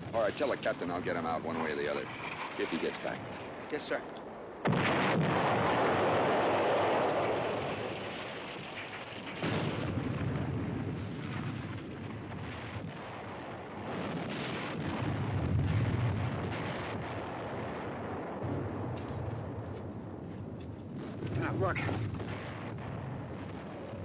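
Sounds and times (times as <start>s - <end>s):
artillery shells exploding: 4.6s - 20.2s, 20.8s - 24.0s.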